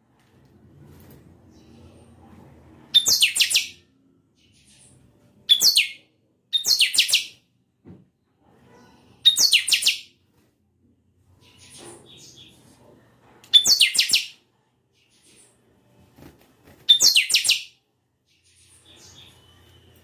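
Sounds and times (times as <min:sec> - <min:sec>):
bird singing sweeping phrases: 0:02.9 - 0:07.4, 0:09.2 - 0:10.1, 0:13.5 - 0:14.4, 0:16.9 - 0:19.8.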